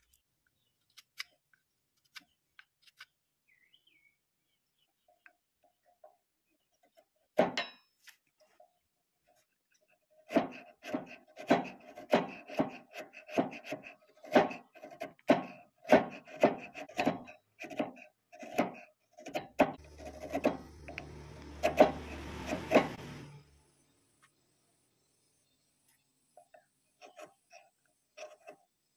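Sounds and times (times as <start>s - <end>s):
wood rasping by hand: 10.1s - 23.3s
small motor humming: 19.8s - 24.0s.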